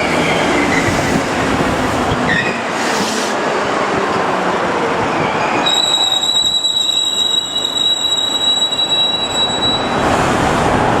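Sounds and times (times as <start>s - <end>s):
train running noise: 0.0s - 11.0s
train wheels squealing: 2.3s - 2.6s, 5.1s - 10.1s.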